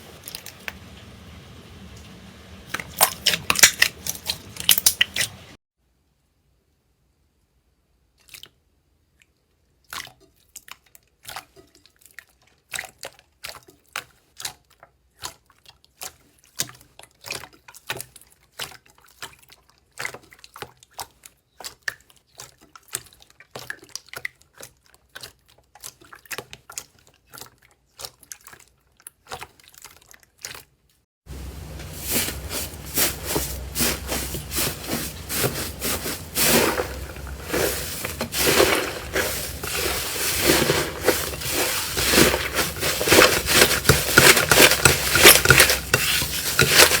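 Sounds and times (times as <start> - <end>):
dense slime crackling: 31.4 - 47.0.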